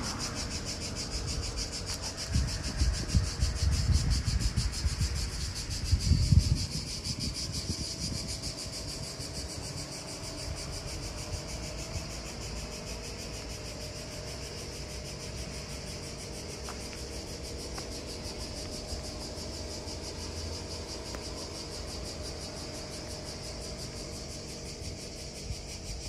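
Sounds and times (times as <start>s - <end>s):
high insect buzz: 0.0s - 26.0s.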